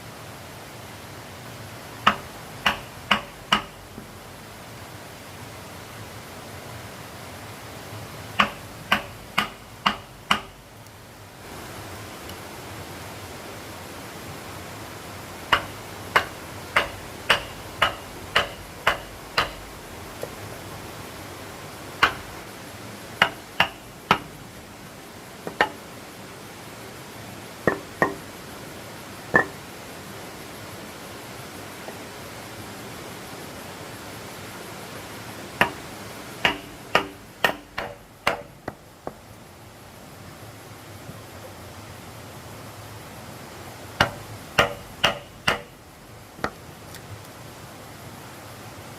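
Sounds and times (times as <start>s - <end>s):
steady hiss: 0.0s - 48.9s
hammer striking wood: 2.0s - 3.8s, 8.4s - 10.6s, 15.5s - 19.7s, 22.0s - 22.4s, 23.2s - 24.4s, 25.5s - 25.8s, 27.7s - 28.2s, 29.4s - 29.6s, 35.6s - 35.8s, 36.4s - 39.2s, 44.0s - 45.8s
sharp knocks on wood: 2.0s - 4.1s, 8.4s - 10.6s, 15.5s - 19.6s, 22.0s - 22.4s, 23.2s - 24.3s, 25.4s - 25.8s, 27.7s - 28.2s, 29.4s - 29.6s, 36.4s - 39.2s, 44.0s - 45.8s.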